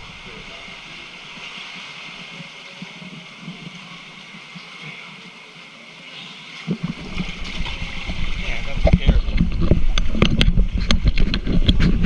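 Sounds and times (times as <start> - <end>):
rushing water hiss: 0.0 - 12.0
low rumbling with thuds: 6.7 - 12.0.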